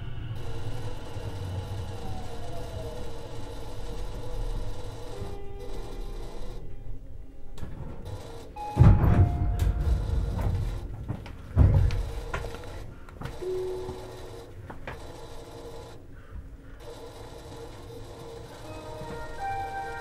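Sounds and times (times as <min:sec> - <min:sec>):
low background noise: 0:00.0 - 0:20.0
loud thuds: 0:07.6 - 0:13.4.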